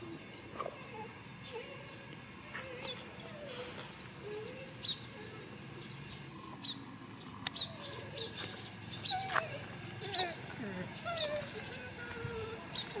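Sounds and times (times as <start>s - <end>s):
low outdoor background noise: 0.0s - 13.0s
small birds chirping: 0.0s - 13.0s.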